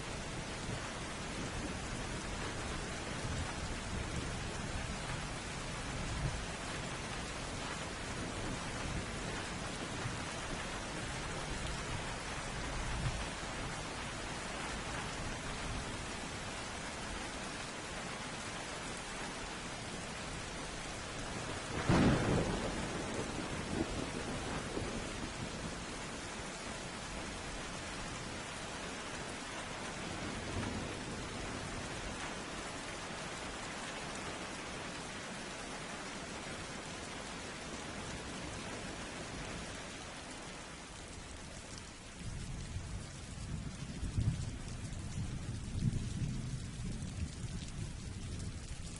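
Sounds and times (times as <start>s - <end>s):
heavy rain falling: 0.0s - 48.9s
low thunder rumble: 21.2s - 26.1s, 42.2s - 48.9s.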